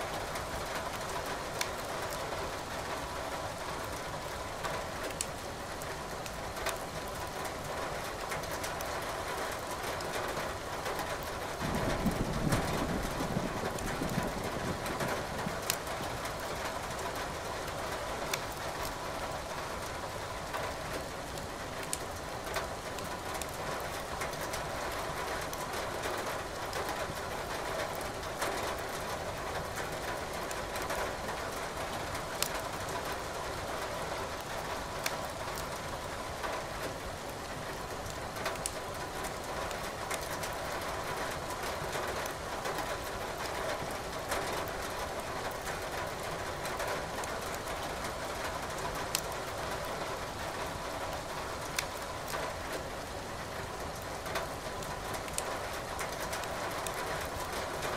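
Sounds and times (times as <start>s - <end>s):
steady rain hiss: 0.0s - 57.9s
wood fire crackling and popping: 5.1s - 5.4s, 15.6s - 15.9s, 32.4s - 32.6s, 38.0s - 39.4s, 49.1s - 49.4s, 51.6s - 52.4s, 54.8s - 55.4s.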